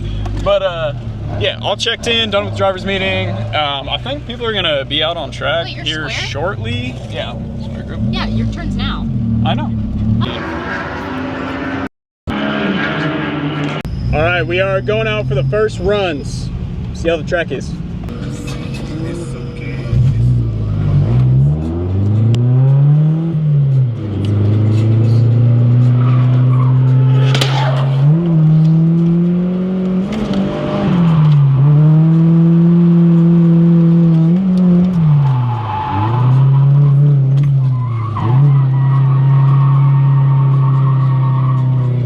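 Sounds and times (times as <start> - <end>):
car engine revving: 0.0 - 42.0
tyre squeal: 25.8 - 28.4, 35.0 - 42.0.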